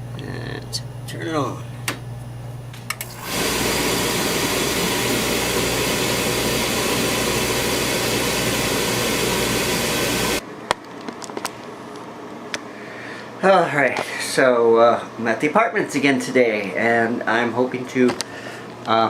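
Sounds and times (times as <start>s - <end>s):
oil furnace burner humming: 0.0s - 10.4s.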